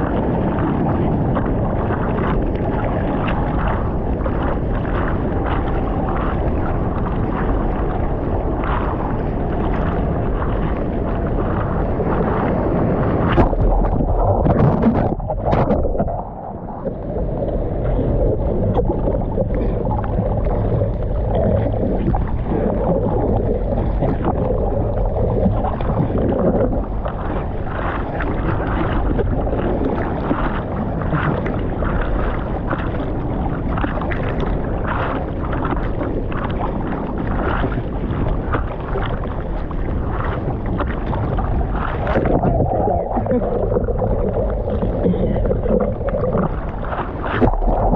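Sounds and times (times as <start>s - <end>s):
rushing water: 0.0s - 47.9s
wind buffeting microphone: 0.0s - 47.9s.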